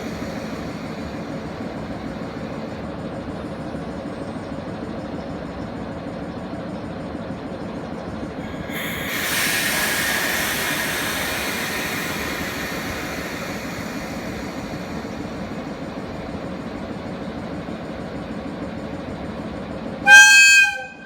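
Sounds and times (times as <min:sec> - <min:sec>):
electric locomotive humming: 0:00.0 - 0:21.0
loud hiss: 0:08.4 - 0:16.9.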